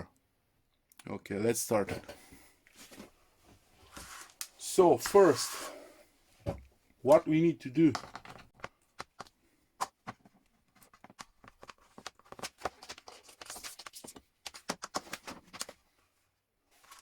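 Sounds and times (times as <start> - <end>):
small parts and cables handled: 6.6 - 15.9.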